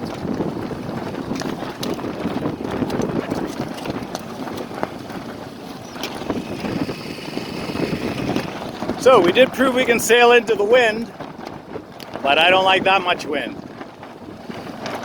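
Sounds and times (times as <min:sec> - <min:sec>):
knocks and slaps on boat: 0:00.0 - 0:06.8
choppy water washing: 0:00.0 - 0:15.0
wind: 0:00.0 - 0:15.0.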